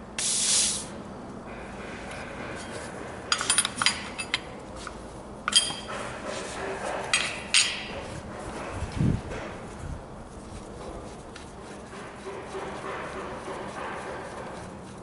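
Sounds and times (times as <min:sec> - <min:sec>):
metal tools clinking: 0:03.3 - 0:04.5, 0:05.5 - 0:05.9.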